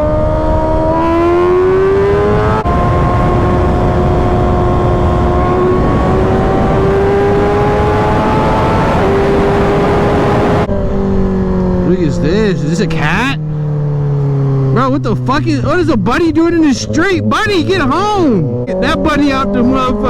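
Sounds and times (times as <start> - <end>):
wind rush: 0.0 - 13.1
motorcycle engine accelerating: 0.0 - 20.0.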